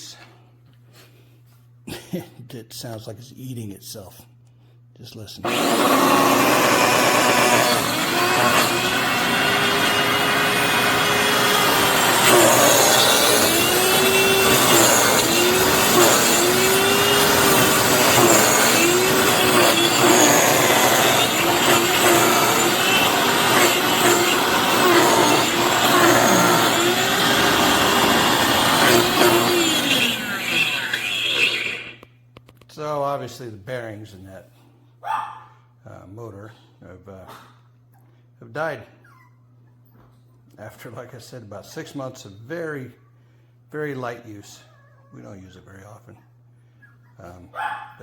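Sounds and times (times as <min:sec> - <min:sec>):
floor cleaner motor grinding and whining: 0:05.4 - 0:32.1.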